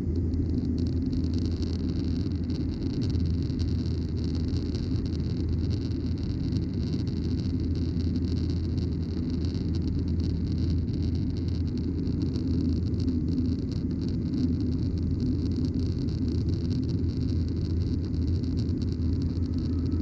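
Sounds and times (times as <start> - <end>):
jet engines droning: 18.9 - 20.0.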